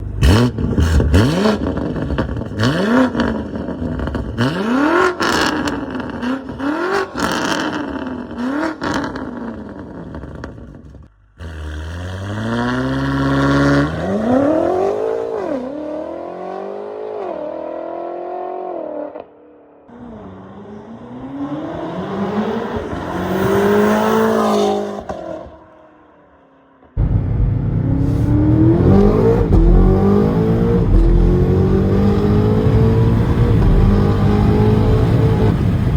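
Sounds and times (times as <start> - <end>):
car engine revving: 0.0 - 10.4, 27.0 - 35.9
exhaust cracks: 27.0 - 35.9.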